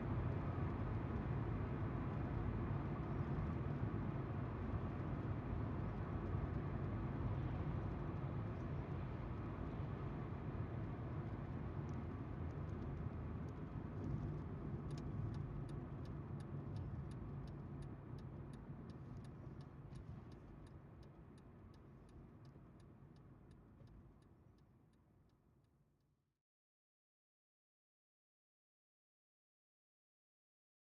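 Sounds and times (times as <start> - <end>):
turn signal ticking: 14.9 - 24.0.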